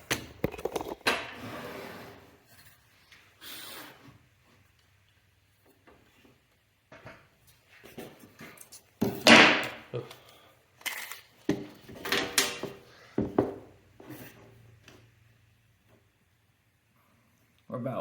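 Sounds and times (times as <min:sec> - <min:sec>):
wooden and metal knocks and scrapes: 0:11.5 - 0:14.5.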